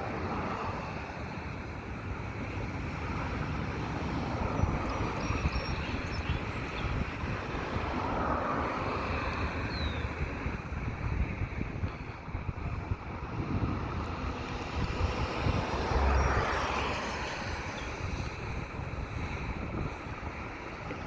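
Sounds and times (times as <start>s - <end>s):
wind on microphone: 0.0s - 21.0s
train rumbling past: 12.3s - 18.8s.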